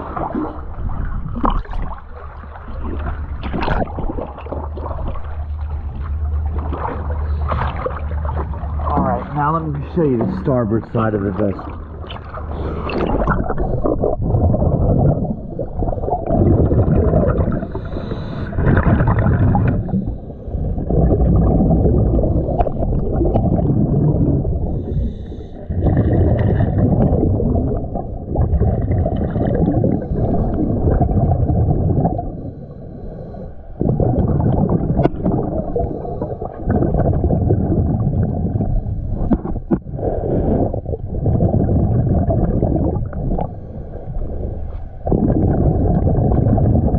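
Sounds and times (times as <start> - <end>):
bubbles rumbling and gurgling: 0.0 - 46.9
diver breathing through regulator: 12.4 - 14.2, 17.5 - 20.9, 24.5 - 26.7, 29.8 - 30.9, 32.2 - 34.1, 35.6 - 37.0, 43.2 - 44.7.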